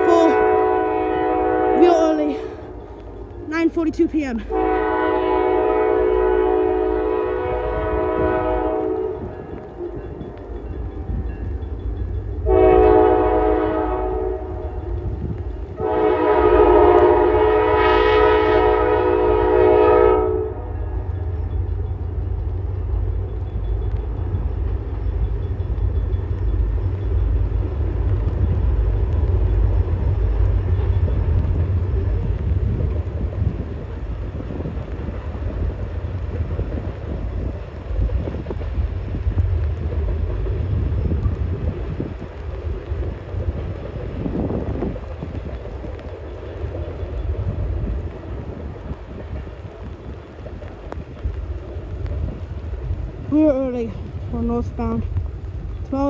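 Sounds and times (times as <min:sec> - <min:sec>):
diesel locomotive horn blasts: 0:00.0 - 0:02.9, 0:04.5 - 0:09.9, 0:12.4 - 0:21.1
train rumbling past: 0:00.0 - 0:56.0.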